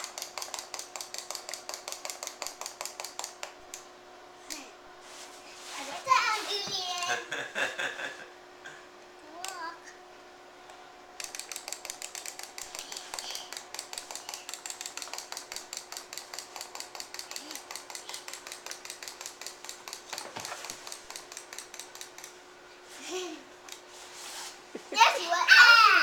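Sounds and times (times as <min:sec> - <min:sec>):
wind-up toy clicking: 0:00.0 - 0:03.8, 0:11.2 - 0:22.4.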